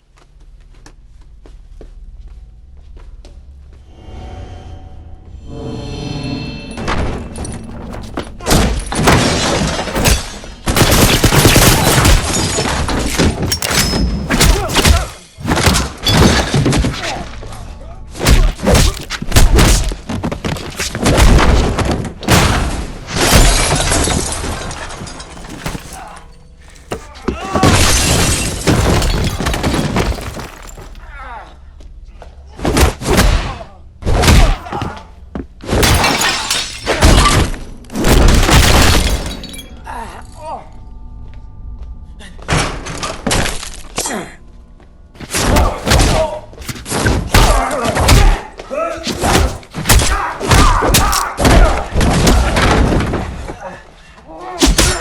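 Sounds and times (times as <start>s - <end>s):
crashes with breaking debris: 7.4s - 17.4s, 18.2s - 31.0s, 35.7s - 39.8s.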